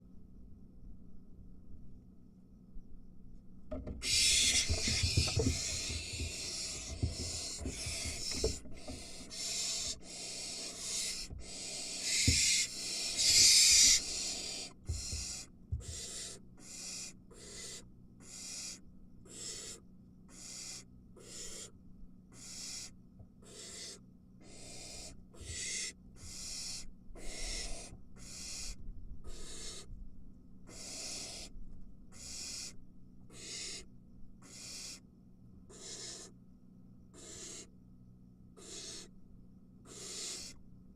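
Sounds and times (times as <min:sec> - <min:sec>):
owl nestlings hissing: 0:04.0 - 0:21.7, 0:22.3 - 0:29.9, 0:30.7 - 0:31.5, 0:32.1 - 0:35.0, 0:35.7 - 0:36.3, 0:37.2 - 0:37.7, 0:38.6 - 0:39.1, 0:39.8 - 0:40.6.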